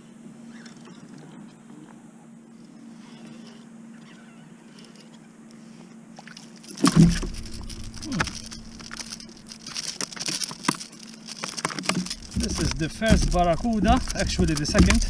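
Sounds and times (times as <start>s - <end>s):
loud thump on kayak: 6.8s - 9.0s
sharp clicks and knocks: 6.8s - 15.0s.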